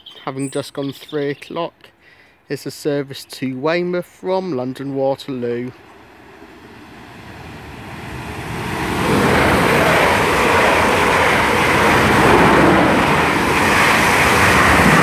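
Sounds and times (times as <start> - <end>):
train passing at speed: 5.6 - 15.0.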